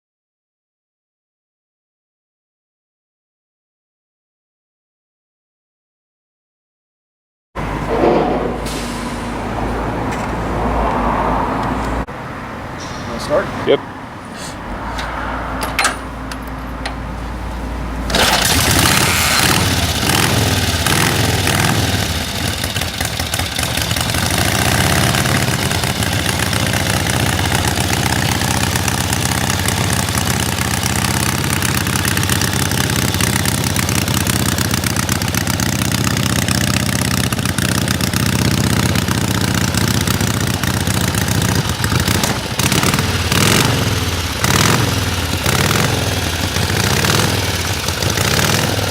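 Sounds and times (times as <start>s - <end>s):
motorcycle engine starting and running: 14.7s - 48.9s.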